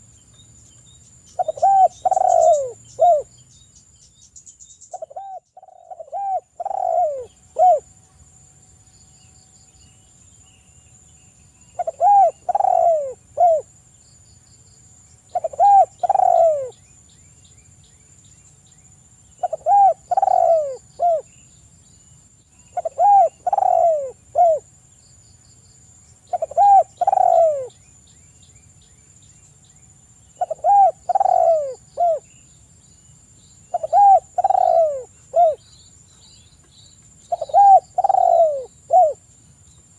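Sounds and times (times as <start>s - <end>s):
dove cooing: 1.4s - 3.3s, 4.9s - 7.9s, 11.8s - 13.7s, 15.3s - 16.8s, 19.4s - 21.3s, 22.8s - 24.7s, 26.3s - 27.8s, 30.4s - 32.3s, 33.7s - 35.6s, 37.3s - 39.2s.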